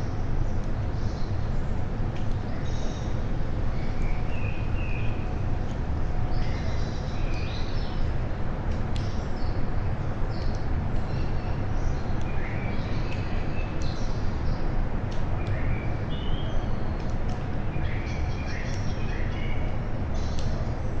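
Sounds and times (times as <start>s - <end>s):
small birds chirping: 10.3s - 20.7s.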